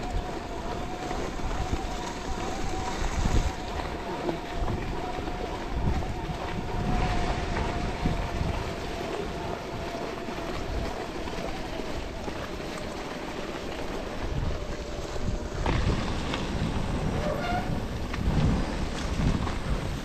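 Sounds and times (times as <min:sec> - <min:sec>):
faint steady whine: 0:00.0 - 0:15.7
bike tyres rumbling over trail: 0:00.0 - 0:20.0
wind buffeting microphone: 0:00.0 - 0:20.0.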